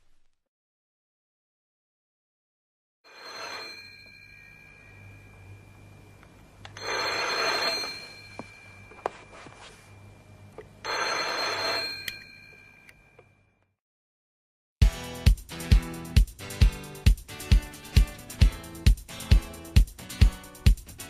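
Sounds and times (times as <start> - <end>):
telephone bell ringing: 3.1 - 5.8, 6.8 - 10.1, 10.8 - 13.2
low mains hum: 3.8 - 13.6.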